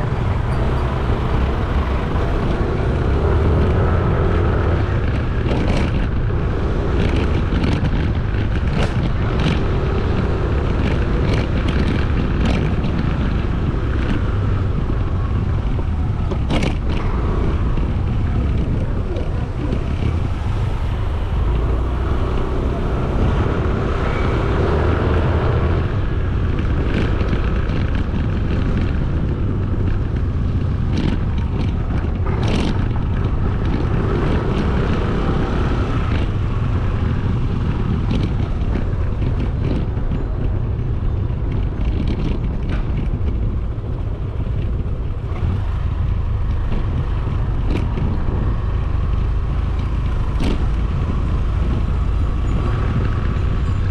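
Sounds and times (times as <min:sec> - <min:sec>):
motorcycle engine: 0:00.0 - 0:53.9
wind buffeting microphone: 0:00.0 - 0:53.9.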